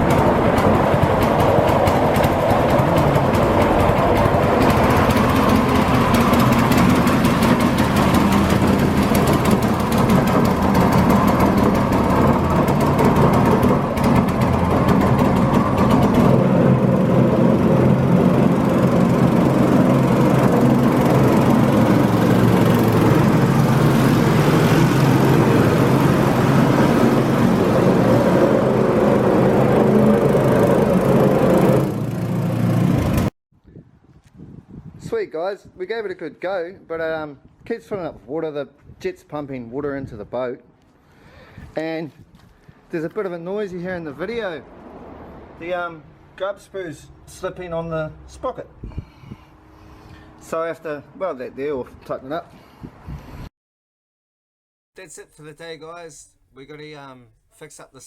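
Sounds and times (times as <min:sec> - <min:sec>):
small engine running: 0:00.0 - 0:33.3.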